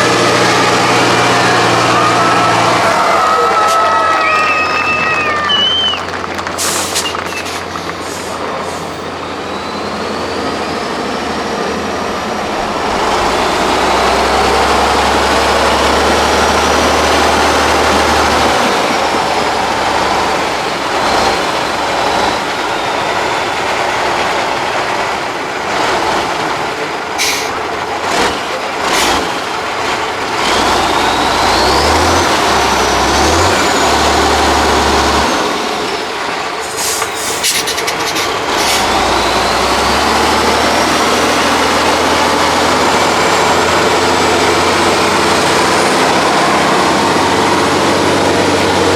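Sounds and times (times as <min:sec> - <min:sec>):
truck diesel engine under load: 0:00.0 - 0:48.9
short sharp hisses: 0:06.6 - 0:09.0, 0:36.6 - 0:38.8.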